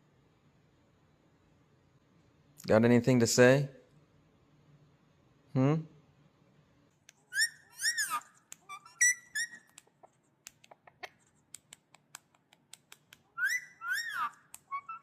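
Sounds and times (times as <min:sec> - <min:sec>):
parrot chirpy notes: 0:07.3 - 0:09.6, 0:13.4 - 0:15.0
parrot whistling: 0:07.3 - 0:09.7, 0:13.4 - 0:15.0.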